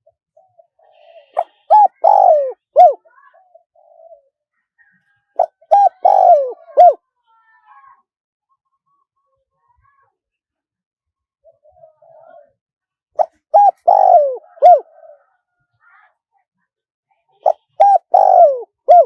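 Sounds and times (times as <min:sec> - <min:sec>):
dove cooing: 0:01.4 - 0:03.0, 0:03.8 - 0:04.3, 0:05.4 - 0:07.0, 0:13.2 - 0:15.3, 0:17.4 - 0:19.0.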